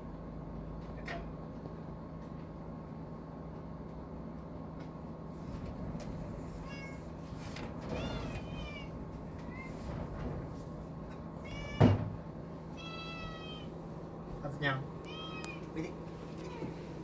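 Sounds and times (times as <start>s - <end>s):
steady electrical hum: 0.0s - 17.0s
cat meowing: 6.6s - 7.2s, 7.9s - 9.8s, 11.4s - 12.1s, 12.7s - 13.8s, 15.0s - 15.8s.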